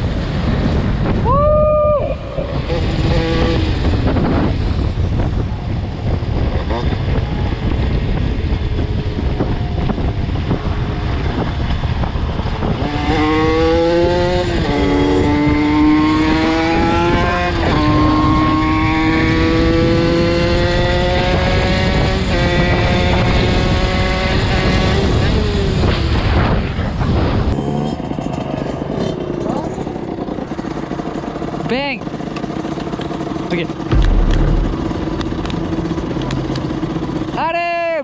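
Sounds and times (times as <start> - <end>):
wind rushing: 0.0 - 13.0, 33.9 - 37.4
two-stroke engine accelerating: 2.2 - 37.5.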